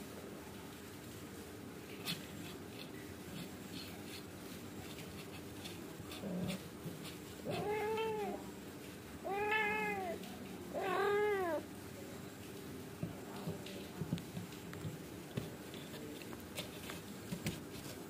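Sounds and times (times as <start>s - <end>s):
cat meowing: 7.4s - 8.4s, 9.2s - 11.6s.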